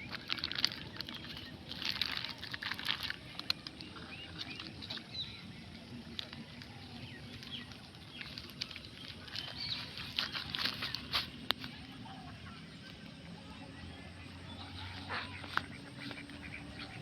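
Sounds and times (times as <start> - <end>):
rustling and crackling: 0.0 - 13.1
low background noise: 0.0 - 17.0.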